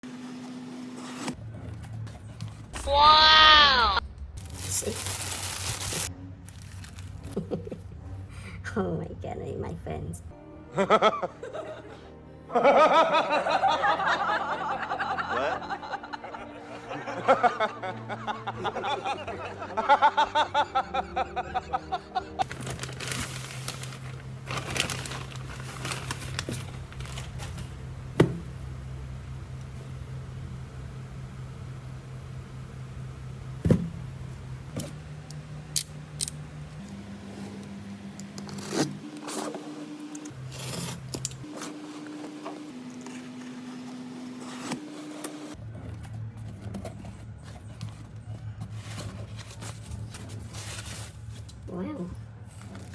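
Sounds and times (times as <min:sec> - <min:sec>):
soft background music: 0:04.0 - 0:27.2.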